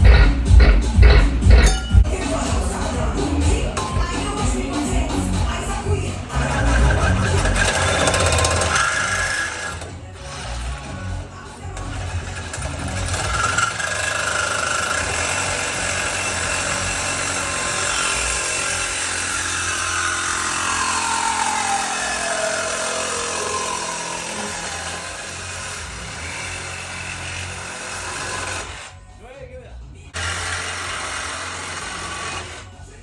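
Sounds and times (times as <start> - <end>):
motor running: 0.0 - 29.0, 30.2 - 33.0
whine gliding down in pitch: 20.5 - 25.0.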